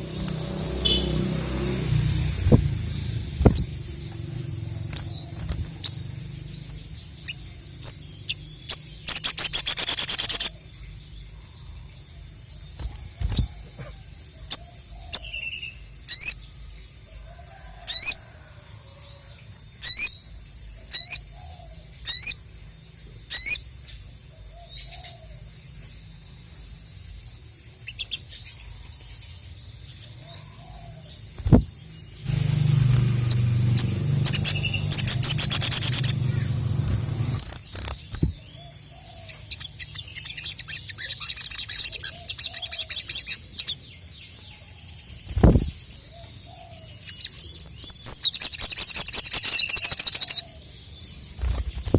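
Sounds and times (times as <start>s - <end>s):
songbird singing and trilling: 0.0s - 51.9s
low thumps: 1.7s - 5.8s, 31.4s - 38.4s.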